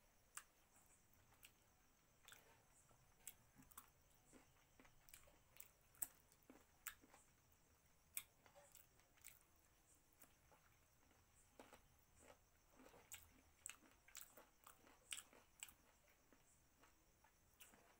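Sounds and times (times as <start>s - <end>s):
person chewing: 2.2s - 2.6s, 3.2s - 7.2s, 11.6s - 16.9s.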